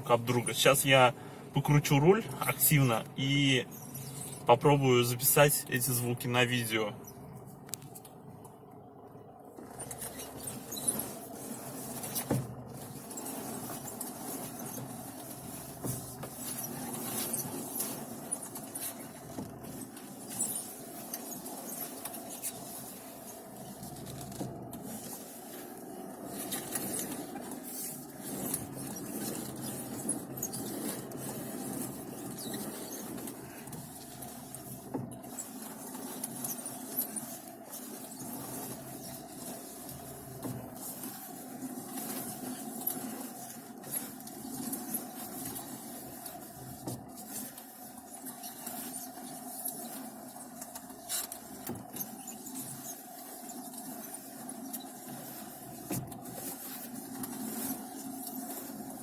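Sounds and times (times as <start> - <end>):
plastic creaking and squeaking: 9.7 - 22.8, 26.3 - 41.0.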